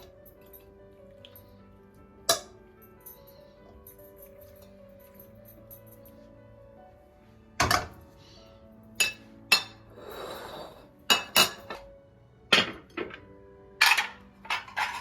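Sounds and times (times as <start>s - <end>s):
dishes and cutlery clinking: 2.2s - 6.1s, 7.6s - 8.1s, 9.0s - 11.9s, 12.5s - 15.0s.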